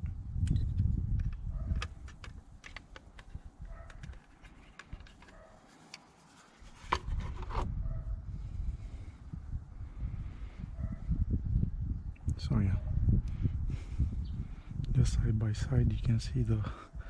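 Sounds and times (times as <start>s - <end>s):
sharp clicks: 0.4s - 6.1s
objects handled clicking and rubbing: 0.5s - 7.7s.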